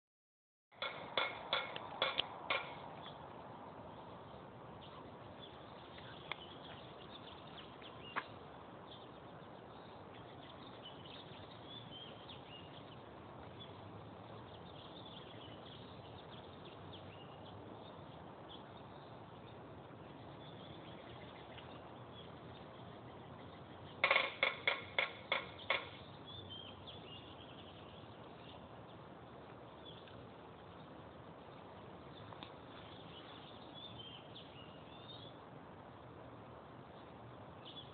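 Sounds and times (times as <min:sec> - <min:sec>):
birds chirping faintly: 0:00.8 - 0:37.9
loud sharp bird calls: 0:20.4 - 0:28.7.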